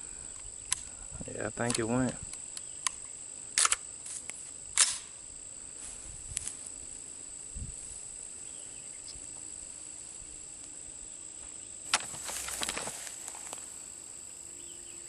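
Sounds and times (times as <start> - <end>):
insects buzzing: 0.0 - 15.0
metallic clacks of rifle action: 1.6 - 3.0, 3.6 - 3.8.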